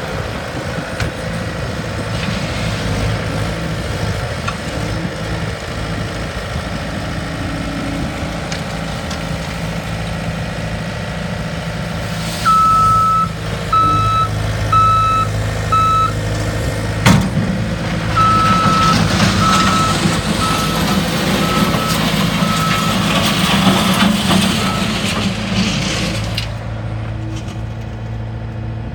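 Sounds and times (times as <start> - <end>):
diesel engine running: 0.0 - 28.9
backup alarm beeping: 12.5 - 16.2, 18.2 - 23.0.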